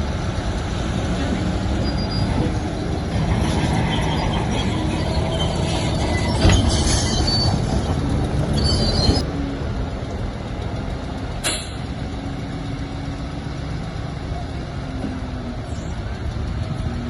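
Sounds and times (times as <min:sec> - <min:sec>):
bulldozer diesel engine: 0:00.0 - 0:17.0
metallic squeals from tracks: 0:01.3 - 0:09.2
sharp clank: 0:11.4 - 0:11.9.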